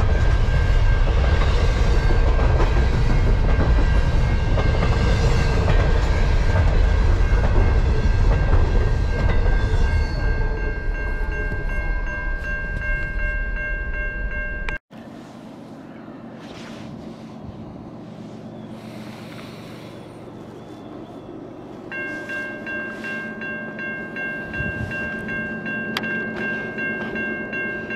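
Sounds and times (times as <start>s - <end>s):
crossing bell ringing: 0.0s - 14.8s, 21.8s - 27.9s
freight train rumbling past: 0.0s - 14.8s, 17.4s - 27.9s.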